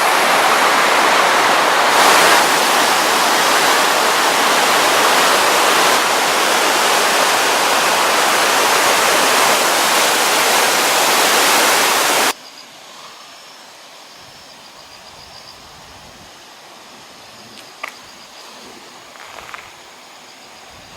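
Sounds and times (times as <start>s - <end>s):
river rushing: 0.0s - 14.0s
faint high insect chirping: 12.3s - 20.9s.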